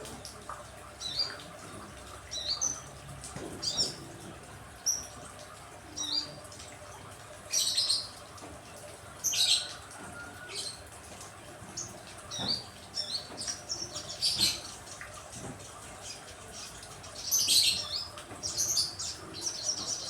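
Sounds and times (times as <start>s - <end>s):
small songbirds chirping: 11.7s - 15.0s, 16.0s - 20.0s.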